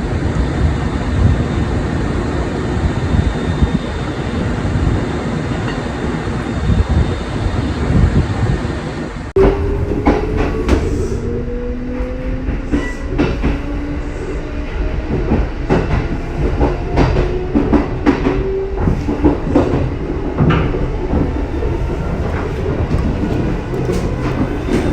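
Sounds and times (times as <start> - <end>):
train wheels clicking over rail joints: 14.9 - 24.9.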